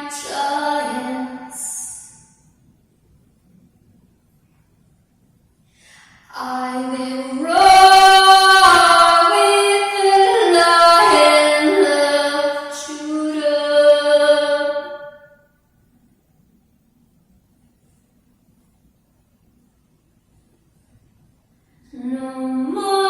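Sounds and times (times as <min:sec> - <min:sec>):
woman singing unaccompanied: 0:00.0 - 0:02.3, 0:06.3 - 0:15.3, 0:21.9 - 0:23.0.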